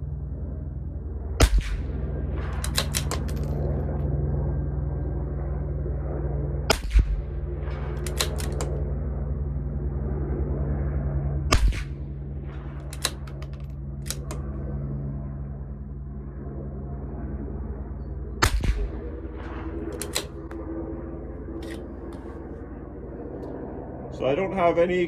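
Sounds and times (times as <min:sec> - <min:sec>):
steady low hum: 0:00.0 - 0:25.0
rifle shots: 0:01.4 - 0:03.6, 0:06.7 - 0:08.8, 0:11.5 - 0:12.0, 0:12.8 - 0:14.5, 0:18.4 - 0:20.7
rifle bolt clicking: 0:02.5 - 0:03.6, 0:08.0 - 0:08.8, 0:12.8 - 0:14.5, 0:19.8 - 0:20.6, 0:21.6 - 0:22.4.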